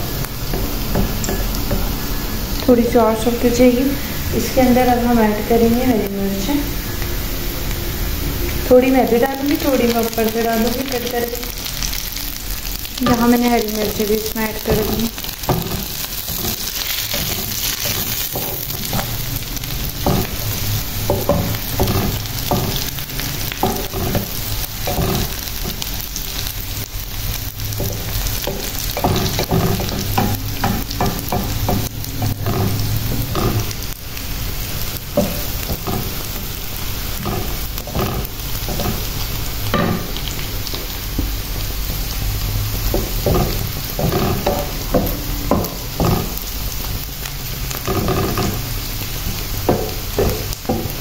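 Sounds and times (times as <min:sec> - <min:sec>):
onions sizzling in oil: 0:00.0 - 0:51.0
wooden spatula scraping pan: 0:13.0 - 0:26.5, 0:27.7 - 0:34.0, 0:34.6 - 0:40.2, 0:42.7 - 0:51.0.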